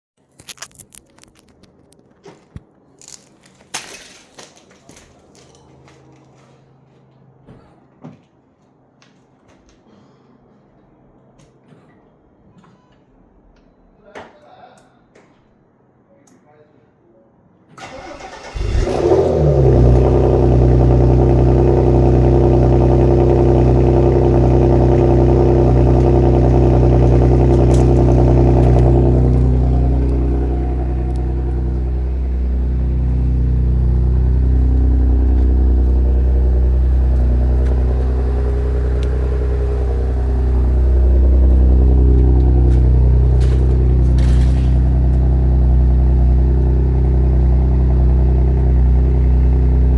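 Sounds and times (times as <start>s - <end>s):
car engine idling: 17.8s - 49.9s.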